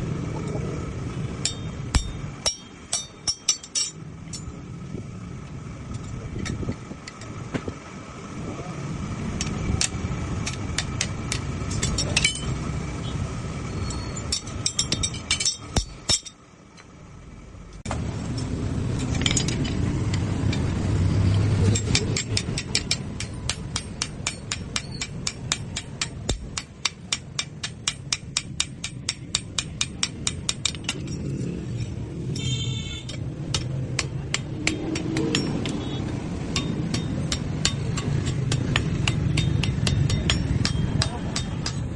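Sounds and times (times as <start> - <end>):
steady low rumble: 0.0 - 41.9
hammer striking steel on anvil: 1.4 - 4.6, 9.4 - 12.6, 14.2 - 16.4, 21.7 - 41.9.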